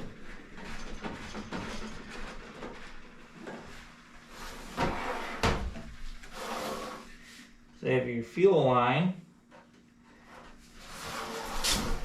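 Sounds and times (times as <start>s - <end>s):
heater knocks and scrapes: 0.0s - 7.2s, 10.2s - 12.0s.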